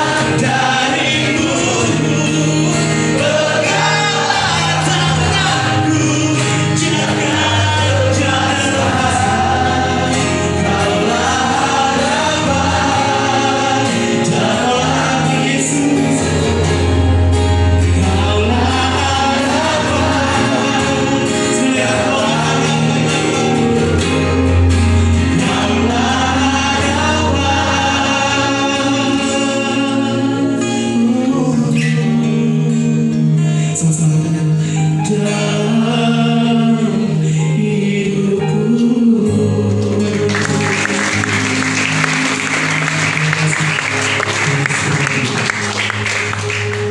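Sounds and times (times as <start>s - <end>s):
gospel song with accompaniment: 0.0s - 46.9s
applause: 40.0s - 46.9s.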